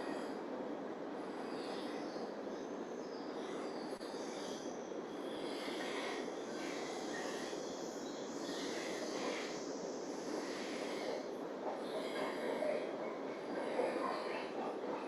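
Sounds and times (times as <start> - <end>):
distant train rolling: 0.0 - 15.0.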